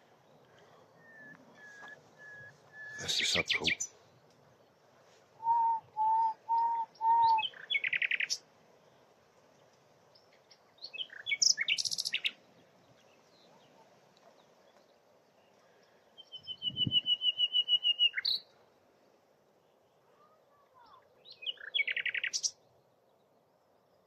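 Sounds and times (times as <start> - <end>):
nightingale singing: 1.0 - 4.0, 5.4 - 8.4, 10.1 - 13.8, 16.1 - 18.5, 21.2 - 22.7.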